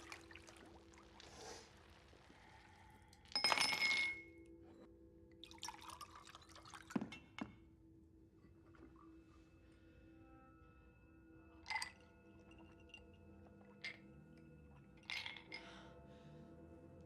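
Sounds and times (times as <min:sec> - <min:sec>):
liquid splashing: 0:00.0 - 0:02.7
glass clinking: 0:03.3 - 0:04.4, 0:11.6 - 0:13.1, 0:15.0 - 0:15.8.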